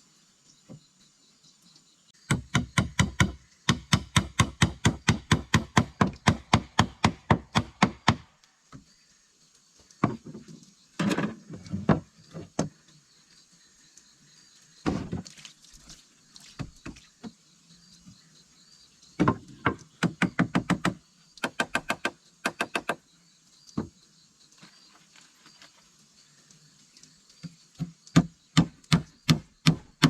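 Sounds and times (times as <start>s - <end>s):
scattered knocks and thuds: 10.0s - 12.8s, 14.8s - 15.4s, 19.2s - 23.0s, 27.4s - 30.0s.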